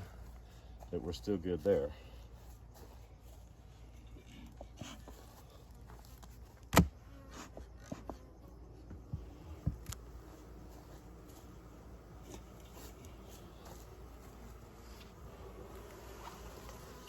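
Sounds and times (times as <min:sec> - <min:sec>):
bees buzzing: 0:08.2 - 0:17.0
hive parts clicking and tapping: 0:08.9 - 0:14.4, 0:15.0 - 0:17.0.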